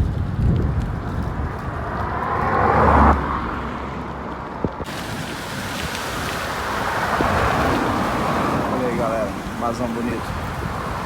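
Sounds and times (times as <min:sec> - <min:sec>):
vehicle passing: 0:01.0 - 0:11.0
traffic hiss: 0:04.9 - 0:11.0.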